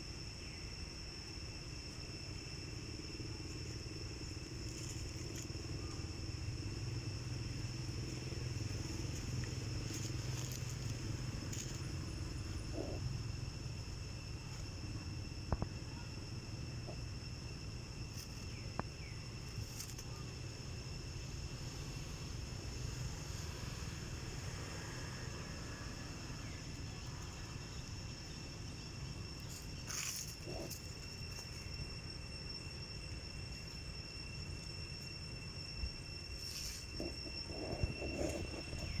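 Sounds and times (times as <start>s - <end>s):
insects buzzing: 0.0s - 39.0s
low background rumble: 1.0s - 19.5s, 25.6s - 39.0s.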